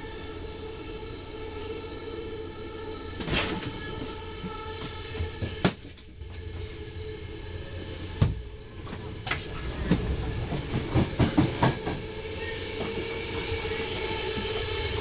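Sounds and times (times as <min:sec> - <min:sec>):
train coach rumbling on rails: 0:00.0 - 0:15.0
train wheels clacking: 0:09.2 - 0:15.0.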